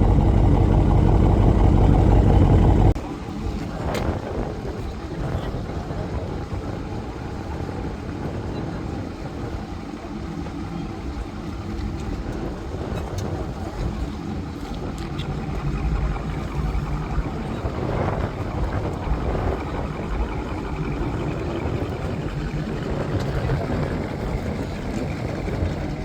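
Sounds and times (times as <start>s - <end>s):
car engine running: 0.0s - 3.0s.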